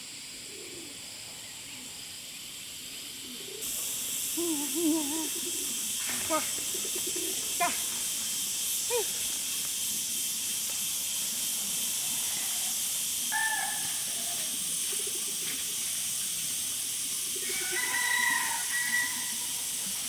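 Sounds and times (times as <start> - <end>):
high-pitched outdoor hiss: 0.0 - 20.0
short pitched calls: 3.6 - 10.2, 11.8 - 20.0.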